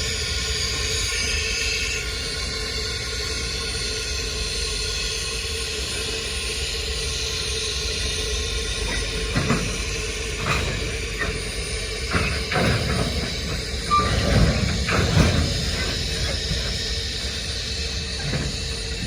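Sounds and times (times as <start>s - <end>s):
freight train cars rumbling: 0.0s - 19.0s.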